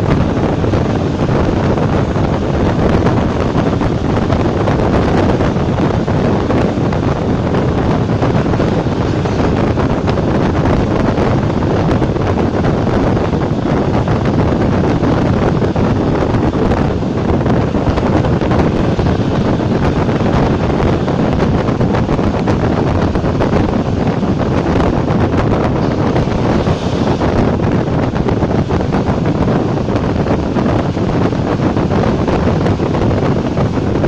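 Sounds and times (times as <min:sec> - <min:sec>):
train running noise: 0:00.0 - 0:34.0
wind buffeting microphone: 0:00.0 - 0:34.0.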